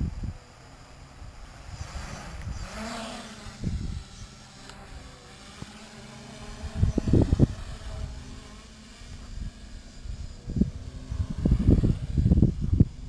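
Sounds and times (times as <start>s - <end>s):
wind buffeting microphone: 0.0s - 0.5s, 1.2s - 4.5s, 6.3s - 13.0s
quadcopter motors humming: 0.0s - 13.0s.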